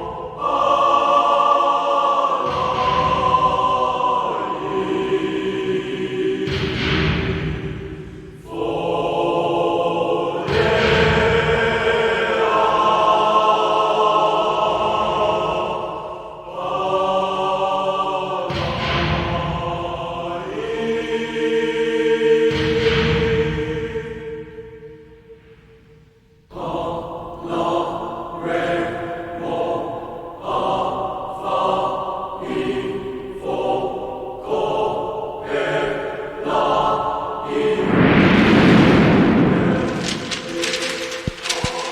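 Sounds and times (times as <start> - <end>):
choral voices chanting: 0.0 - 25.0, 26.5 - 41.9
group of voices chanting: 26.5 - 38.2
low rumble: 37.6 - 41.9.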